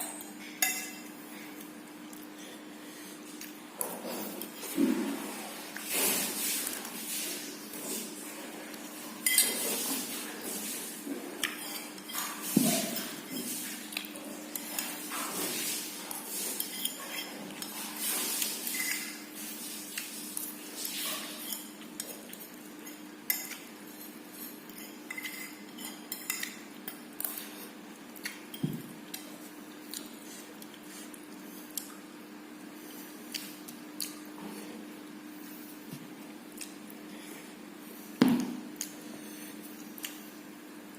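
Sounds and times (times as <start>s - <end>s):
cutlery clinking on a plate: 24.7s - 26.6s.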